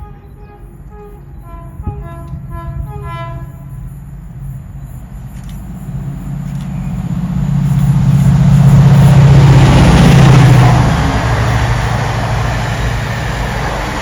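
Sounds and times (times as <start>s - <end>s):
short horn-like tones: 0.0s - 3.8s
train approaching: 0.0s - 14.0s
low engine drone: 3.7s - 14.0s.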